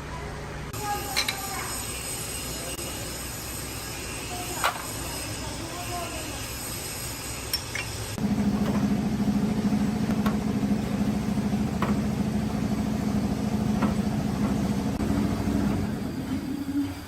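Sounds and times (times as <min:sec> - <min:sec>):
engine running steadily: 0:07.5 - 0:17.0.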